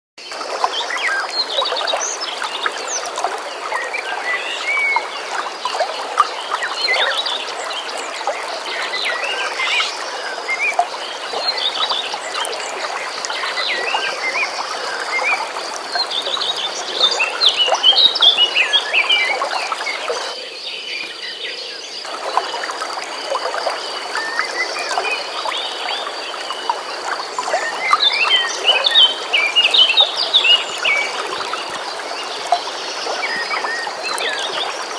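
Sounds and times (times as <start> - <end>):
flowing stream water: 0.2 - 34.9.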